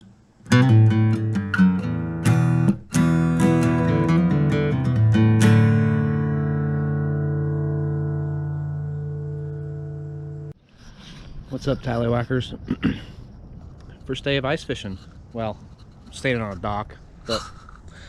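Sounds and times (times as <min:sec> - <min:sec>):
acoustic guitar playing: 0:00.0 - 0:10.6.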